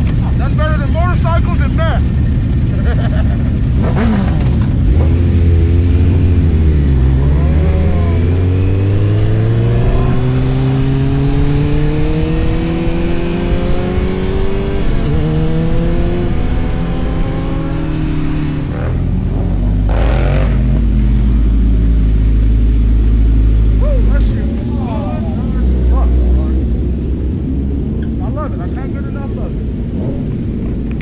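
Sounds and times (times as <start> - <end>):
motorcycle engine accelerating: 0.0 - 28.5.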